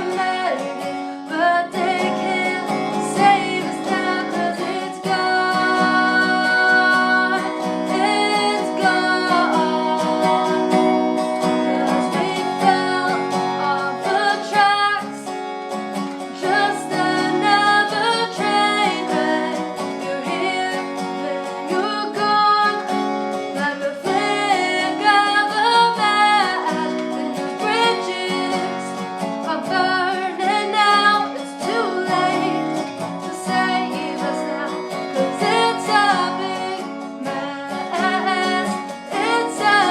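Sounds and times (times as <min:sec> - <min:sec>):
person singing: 0:00.0 - 0:15.3, 0:16.2 - 0:39.9
acoustic guitar: 0:00.0 - 0:39.9.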